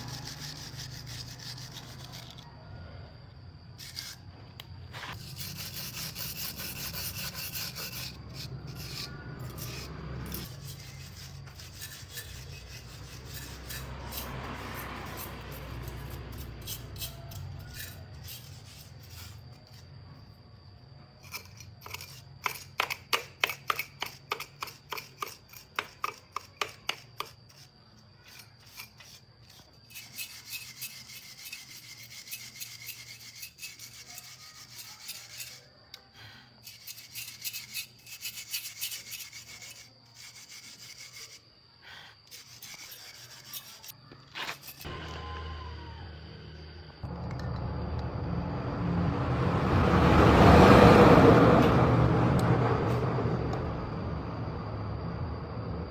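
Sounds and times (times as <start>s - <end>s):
quick rasping strokes: 0.0s - 2.5s, 4.9s - 19.8s, 23.7s - 35.7s, 36.6s - 45.0s.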